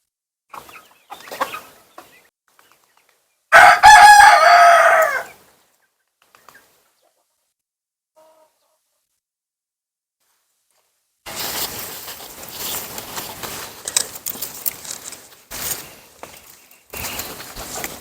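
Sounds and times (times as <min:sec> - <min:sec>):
rooster crowing: 0:03.5 - 0:05.4.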